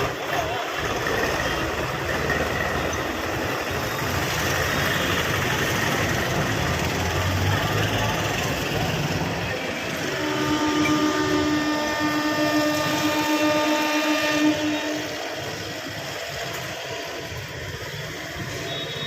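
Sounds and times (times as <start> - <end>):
train running rumble: 0.0 - 19.0
electric train horn: 9.9 - 16.2, 18.4 - 19.0.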